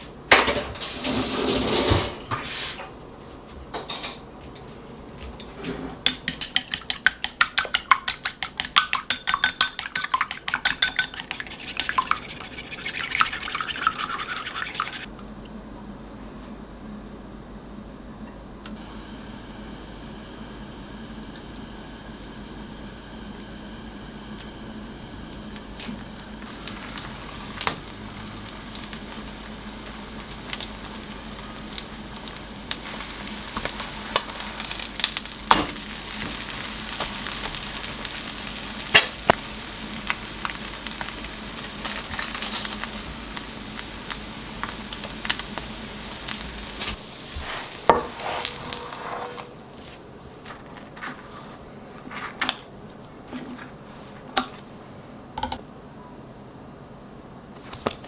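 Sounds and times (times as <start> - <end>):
food sizzling in a pan: 7.4 - 15.1, 24.3 - 49.6
sharp pops and crackles: 26.4 - 48.9.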